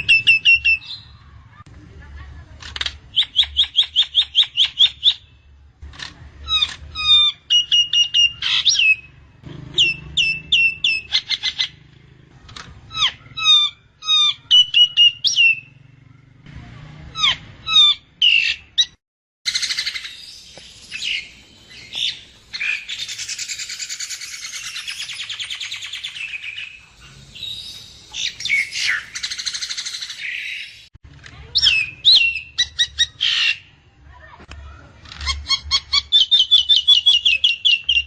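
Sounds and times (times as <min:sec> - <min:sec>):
myna calling with whistles: 0:00.0 - 0:01.2, 0:03.1 - 0:05.3, 0:06.5 - 0:09.2, 0:09.8 - 0:11.8, 0:12.9 - 0:15.8, 0:17.2 - 0:30.9, 0:31.5 - 0:33.7, 0:35.2 - 0:38.0.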